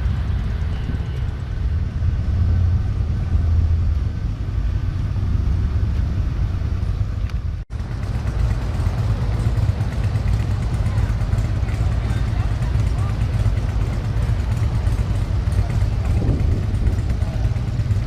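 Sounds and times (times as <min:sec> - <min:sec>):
motorcycle engine rumble: 0:00.0 - 0:18.0
wind noise: 0:15.9 - 0:18.0.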